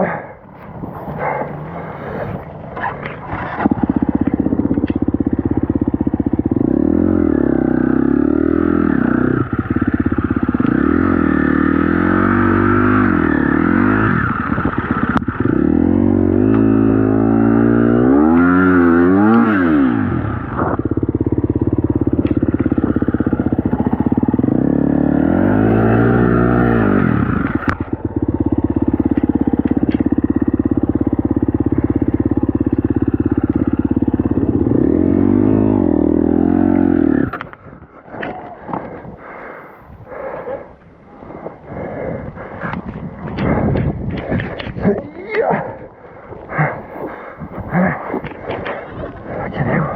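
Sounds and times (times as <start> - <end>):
dirt bike engine revving: 0.6 - 40.4.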